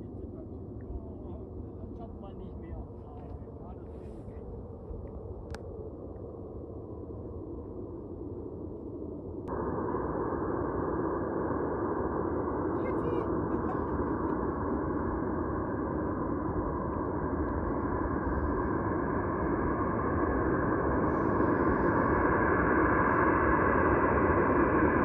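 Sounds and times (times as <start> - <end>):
jet engines rumbling and whining: 0.0 - 25.0.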